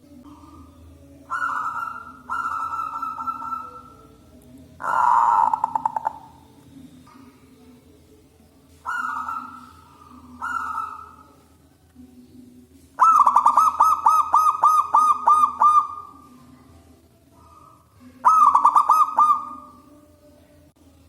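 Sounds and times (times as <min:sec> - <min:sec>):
dove cooing: 0:00.0 - 0:07.4, 0:08.7 - 0:11.5, 0:13.0 - 0:19.9.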